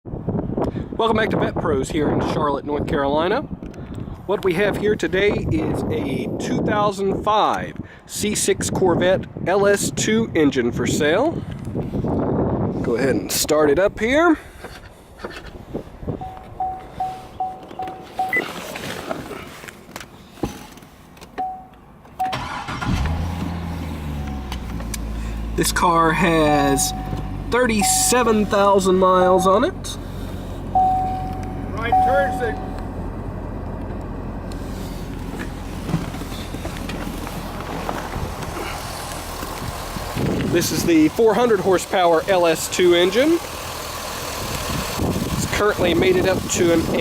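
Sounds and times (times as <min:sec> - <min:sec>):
car engine starting and idling: 0:14.5 - 0:47.0
car warning chime beeps: 0:16.2 - 0:18.6, 0:21.4 - 0:22.6, 0:26.5 - 0:29.7, 0:30.7 - 0:32.8.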